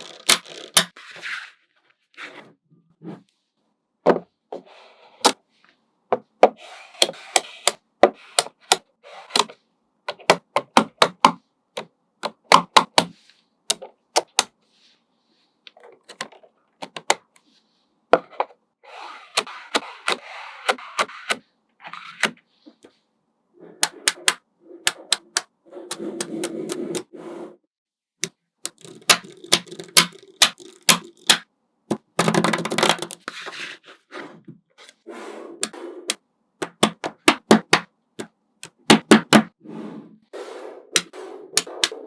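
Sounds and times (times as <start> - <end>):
magnetic balls rattling and scraping: 0.0 - 1.2, 28.7 - 33.6
magnetic balls clicking together: 28.7 - 33.3.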